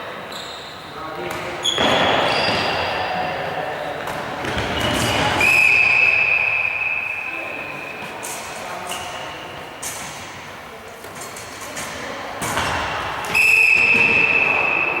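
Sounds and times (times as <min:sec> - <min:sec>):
players' voices: 0:00.0 - 0:15.0
referee's whistle blast: 0:04.8 - 0:08.2, 0:13.3 - 0:15.0.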